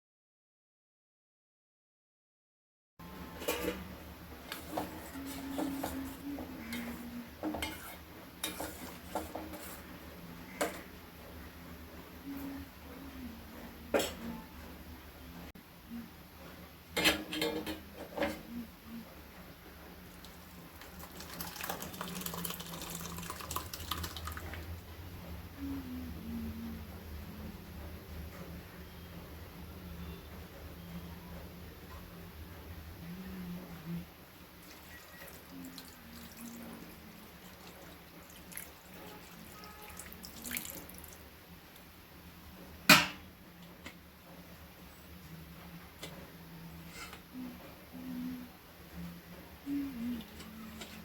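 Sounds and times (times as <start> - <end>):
water running and splashing: 20.2 - 24.6, 34.6 - 41.2
water trickling and dripping: 20.2 - 24.7
steady low hum: 23.0 - 51.0.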